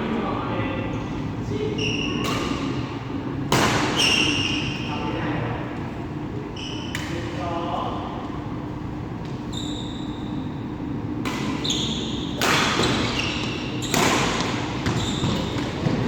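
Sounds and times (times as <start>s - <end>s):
shoes squeaking on court floor: 1.8s - 2.3s, 6.5s - 7.2s, 9.3s - 10.6s, 11.5s - 16.0s.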